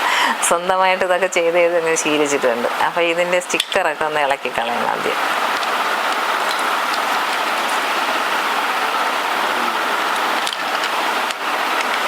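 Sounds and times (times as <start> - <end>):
hissing rush of noise: 4.8 - 12.0.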